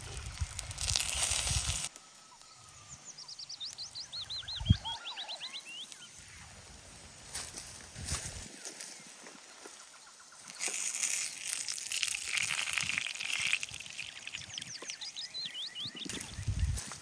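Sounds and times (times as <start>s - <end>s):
rustling hiss: 0.0s - 17.0s
short high bird chirps: 1.0s - 6.5s.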